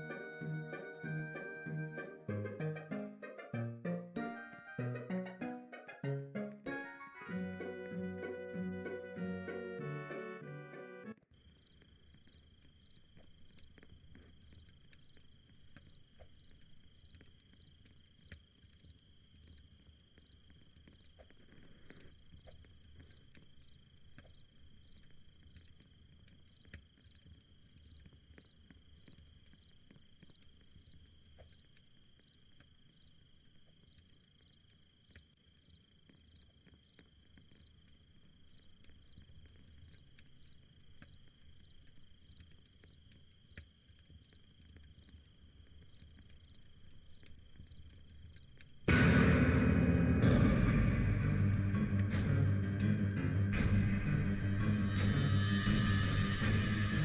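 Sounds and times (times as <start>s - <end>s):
insects trilling and chirping: 11.4s - 48.9s.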